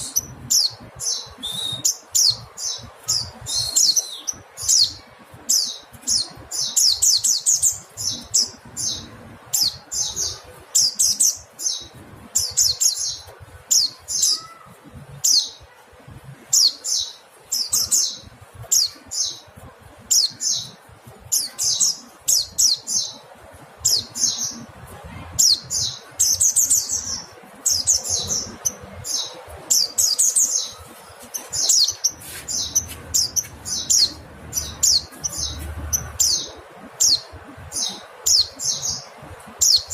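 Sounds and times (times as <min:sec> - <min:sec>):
bird high-pitched chattering: 0:25.4 - 0:39.9.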